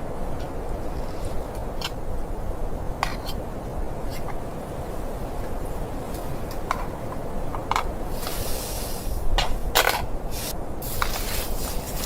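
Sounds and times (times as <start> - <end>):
crackling rustle: 0.0 - 12.0
low wind rumble: 0.0 - 12.0
sharp crackles and clicks: 6.1 - 12.0
short hiss: 8.1 - 9.2, 10.3 - 12.0.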